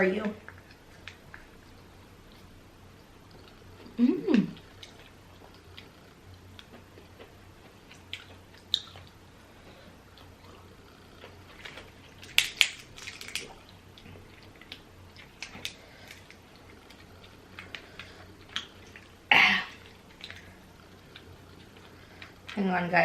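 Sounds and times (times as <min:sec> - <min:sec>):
crab shell cracking: 0:11.3 - 0:18.9.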